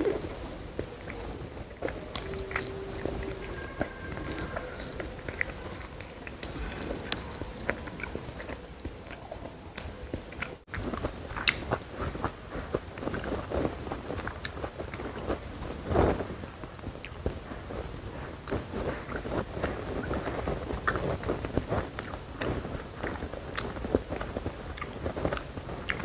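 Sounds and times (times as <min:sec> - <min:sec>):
chewing with crisp crunches: 0:00.0 - 0:26.0.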